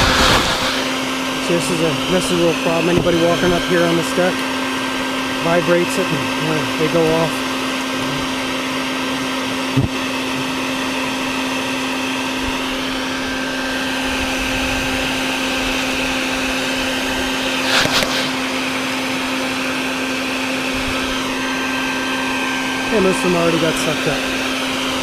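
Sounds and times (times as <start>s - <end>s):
short rattling burst: 0.0s - 1.5s, 17.4s - 18.8s
vacuum running: 0.0s - 25.0s.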